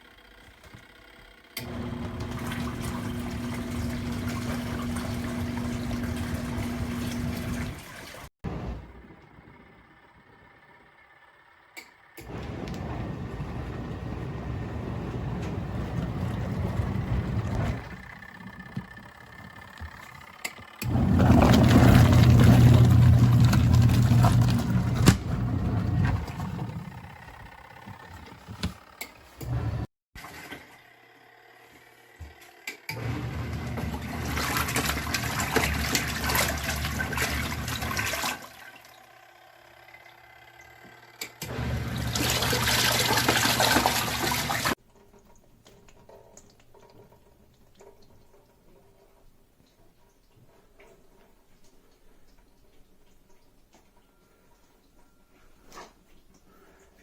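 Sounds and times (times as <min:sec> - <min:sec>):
washing machine motor hum: 0:00.0 - 0:50.1
water churning and splashing: 0:01.7 - 0:08.3, 0:20.9 - 0:27.2, 0:33.0 - 0:39.0, 0:41.5 - 0:44.8.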